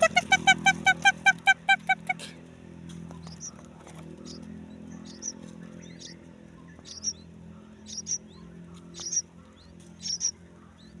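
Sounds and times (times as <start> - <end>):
low steady hum: 0.0 - 11.0
bird nestlings squeaky calls: 3.2 - 11.0.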